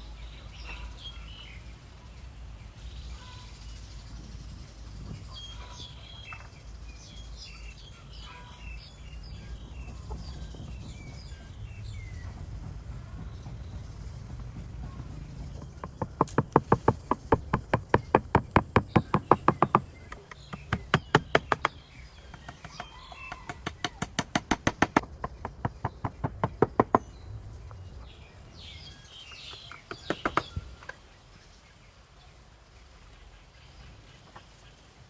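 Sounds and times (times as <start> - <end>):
birds chirping faintly: 0.0 - 35.0
hammer driving nails into wood: 14.3 - 27.0, 29.7 - 30.6.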